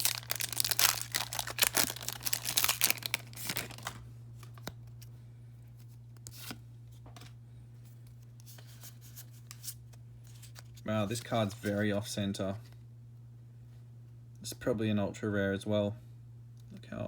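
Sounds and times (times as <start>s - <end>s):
foil wrapper tearing and crinkling: 0.0s - 4.7s
cards clicking and rustling: 0.0s - 5.0s.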